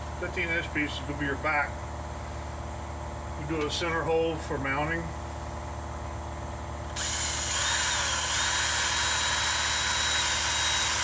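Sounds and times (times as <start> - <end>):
power drill boring into wood: 7.0 - 11.0.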